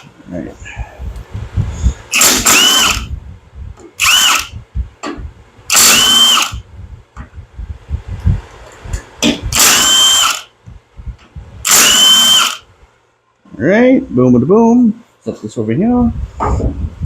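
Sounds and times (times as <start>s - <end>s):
power drill motor whine: 2.1s - 3.1s, 4.0s - 4.6s, 5.7s - 6.6s, 9.5s - 10.5s, 11.6s - 12.7s.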